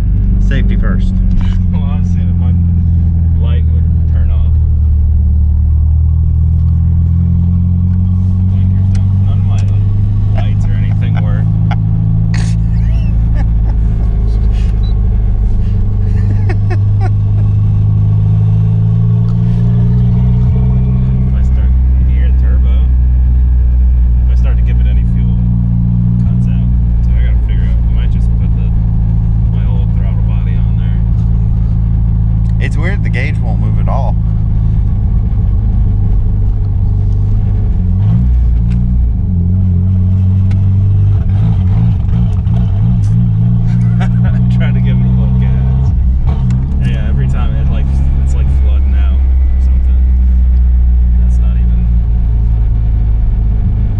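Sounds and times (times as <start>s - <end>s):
turbocharged car engine running: 0.0s - 53.9s.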